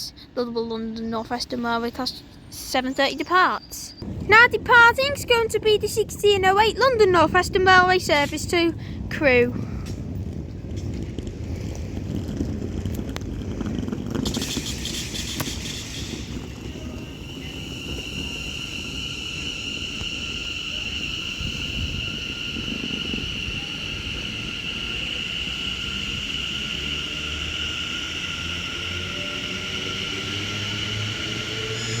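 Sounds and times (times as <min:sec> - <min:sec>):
low rumble: 0:07.0 - 0:32.0
air hiss: 0:14.2 - 0:32.0
high electrical whine: 0:14.2 - 0:32.0.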